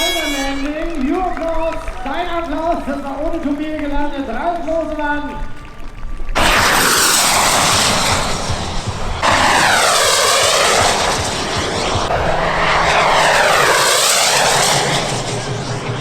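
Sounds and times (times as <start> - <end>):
model aircraft engine flying past: 0.0 - 1.4, 6.4 - 16.0.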